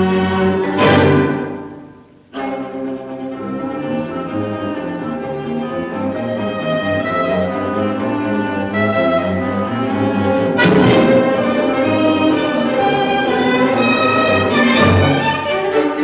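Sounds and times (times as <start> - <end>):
bowed strings: 0.0 - 16.0
brass playing: 7.2 - 15.5.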